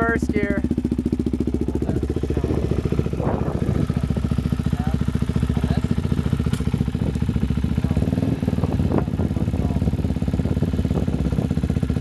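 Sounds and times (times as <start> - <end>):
dirt bike engine idling: 0.0 - 12.0.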